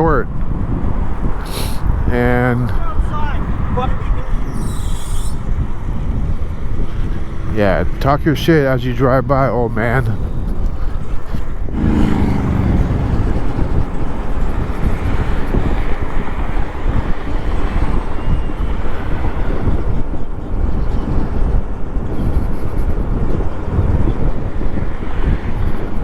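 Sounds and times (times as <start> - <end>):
road noise: 0.0 - 26.0
wind buffeting microphone: 0.0 - 26.0
brief low pitched hum: 11.7 - 14.8.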